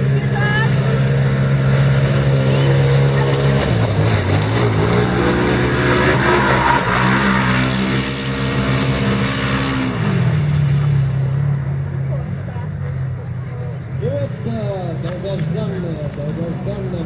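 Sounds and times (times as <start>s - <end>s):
quad bike engine under throttle: 0.0s - 6.3s.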